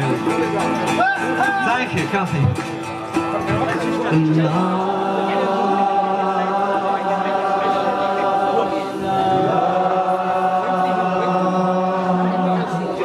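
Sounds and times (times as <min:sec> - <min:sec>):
voices singing a held note: 0:04.2 - 0:13.0.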